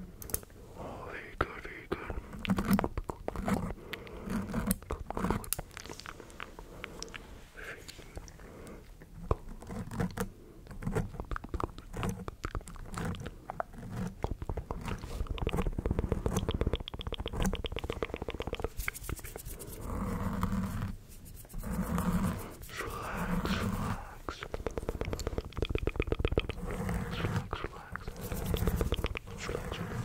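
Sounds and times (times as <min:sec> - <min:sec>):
wet mouth clicks and smacks: 0:04.7 - 0:09.0, 0:11.1 - 0:19.8, 0:22.6 - 0:30.0.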